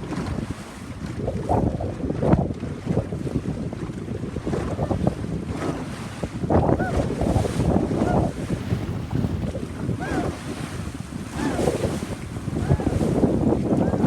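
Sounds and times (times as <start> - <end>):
waves splashing against hull: 0.0 - 14.0
wind buffeting microphone: 0.0 - 14.0.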